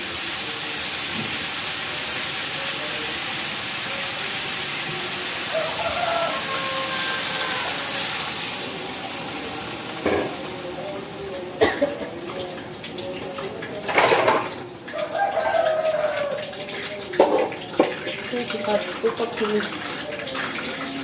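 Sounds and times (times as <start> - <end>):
tofu sizzling in a wok: 0.0 - 14.4.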